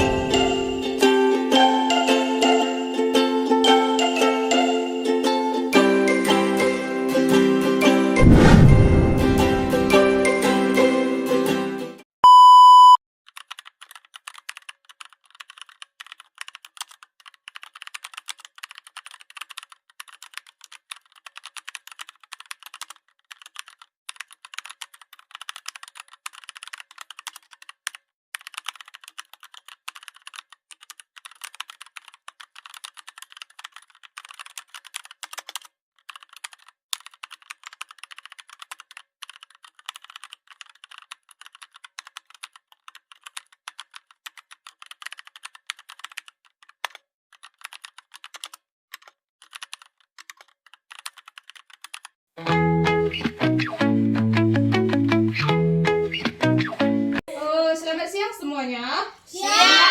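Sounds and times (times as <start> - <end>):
loud beep: 12.2 - 13.0
rapid keyboard typing: 13.3 - 52.2.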